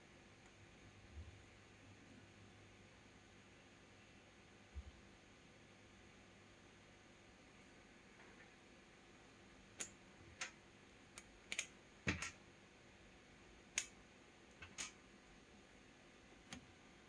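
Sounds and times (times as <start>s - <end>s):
light clicks and taps: 13.8s - 15.0s.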